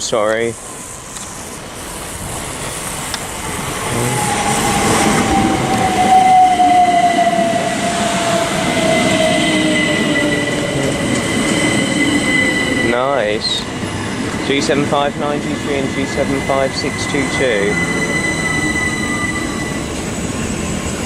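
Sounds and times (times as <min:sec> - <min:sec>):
electric train pulling in: 0:00.0 - 0:21.0
thin high squeal: 0:06.2 - 0:13.3, 0:16.5 - 0:19.9.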